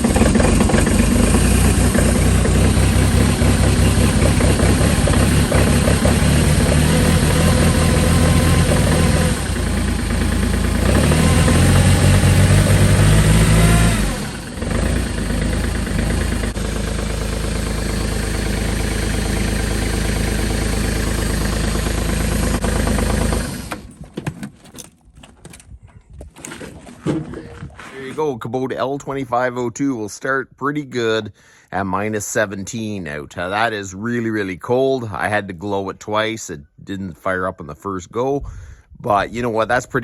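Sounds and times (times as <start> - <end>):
diesel tractor engine running: 0.0 - 24.2.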